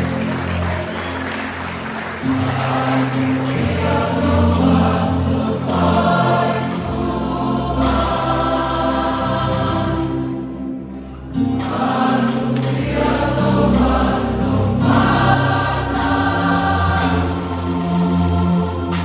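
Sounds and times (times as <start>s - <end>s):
choir singing a hymn: 0.0s - 19.0s.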